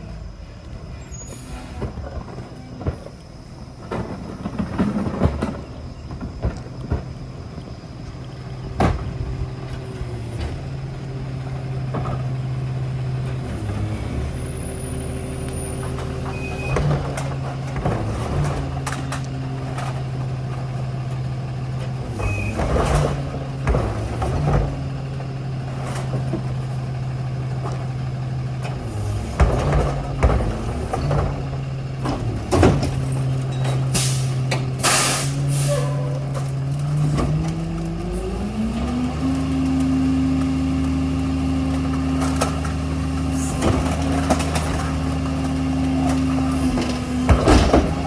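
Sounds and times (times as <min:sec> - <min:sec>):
garbage truck engine droning: 0:00.0 - 0:48.0
high squeals: 0:33.5 - 0:36.7
metal clanks: 0:42.1 - 0:48.0.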